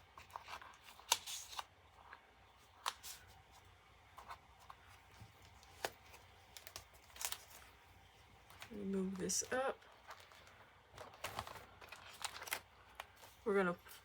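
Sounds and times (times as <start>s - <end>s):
paper rustling: 0.0s - 7.8s, 8.4s - 14.0s.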